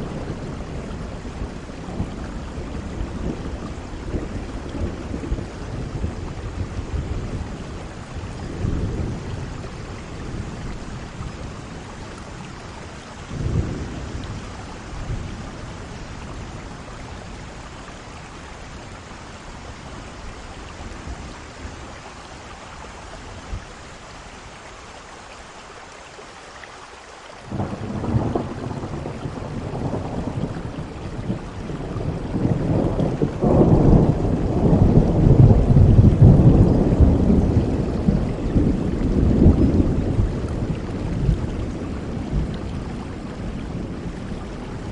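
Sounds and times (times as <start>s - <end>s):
rolling thunder: 0.0s - 17.6s, 27.5s - 44.9s
heavy rain: 0.0s - 44.9s.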